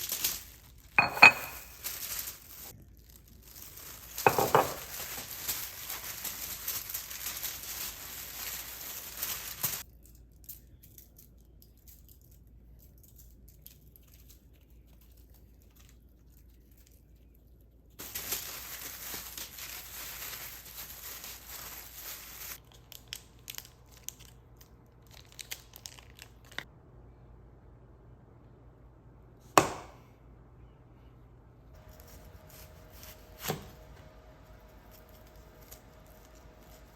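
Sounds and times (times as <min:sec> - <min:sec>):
packaging crinkling and tearing: 0:00.0 - 0:01.0, 0:01.8 - 0:10.4, 0:18.0 - 0:26.7, 0:34.4 - 0:36.9.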